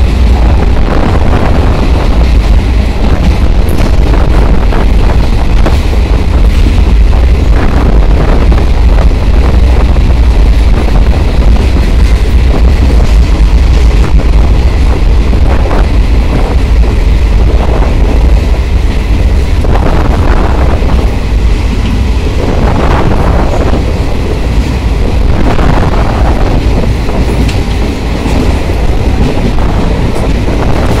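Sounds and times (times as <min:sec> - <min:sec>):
train rumbling in a tunnel: 0:00.0 - 0:31.0.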